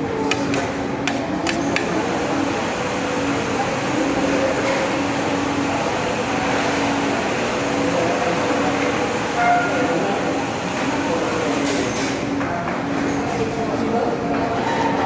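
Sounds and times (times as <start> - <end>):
indistinct background chatter: 0.0 - 15.0
ventilation hum: 0.0 - 15.0.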